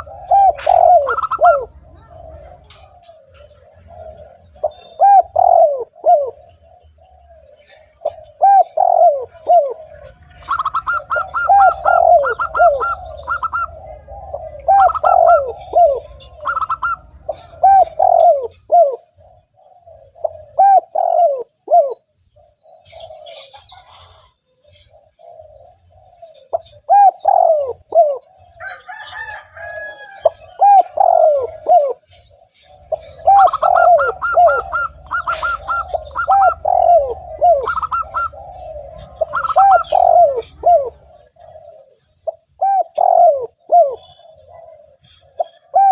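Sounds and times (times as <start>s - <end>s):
higher repeated bird notes: 0.0s - 22.8s, 32.7s - 45.9s
dove cooing: 0.0s - 45.9s
softer cooing behind: 0.0s - 45.9s.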